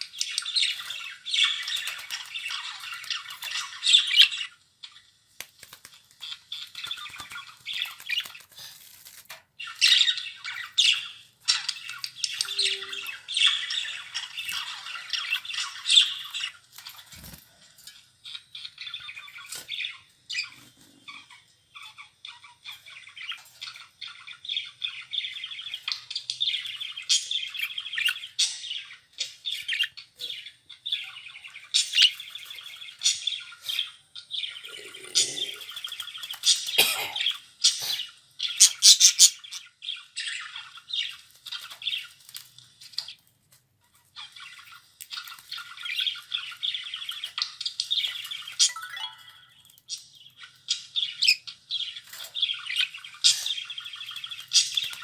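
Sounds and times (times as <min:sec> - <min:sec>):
budgerigars chattering and warbling: 0:18.3 - 0:42.2, 0:44.1 - 0:55.0.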